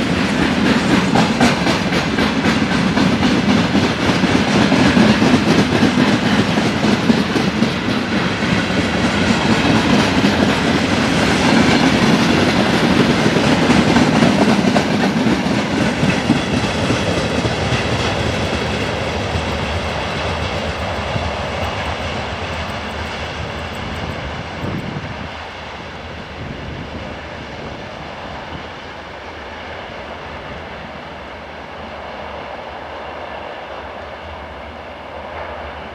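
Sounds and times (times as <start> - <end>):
train wheels clattering over rail joints: 0.0 - 25.0.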